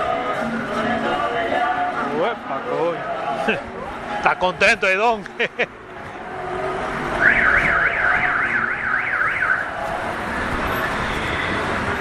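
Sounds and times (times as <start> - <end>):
street traffic noise: 0.0 - 12.0
car alarm siren warbling: 7.2 - 9.8.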